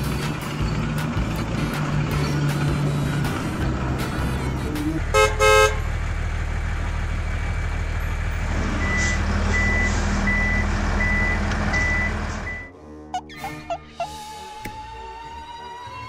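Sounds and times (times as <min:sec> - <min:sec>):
heavy truck engine running: 0:00.0 - 0:16.0
horn toots: 0:05.1 - 0:05.8
reversing beeps: 0:08.8 - 0:12.7.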